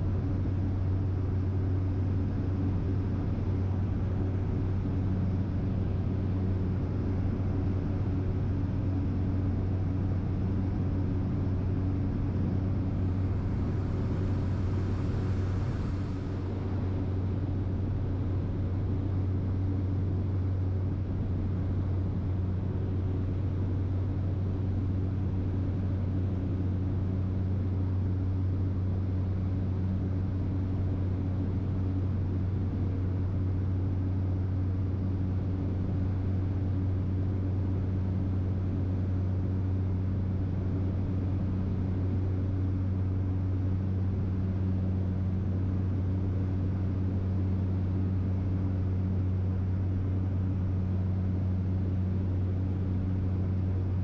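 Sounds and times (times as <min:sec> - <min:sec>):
propeller aircraft engine hum: 0:00.0 - 0:54.0
airflow hiss: 0:13.3 - 0:16.8.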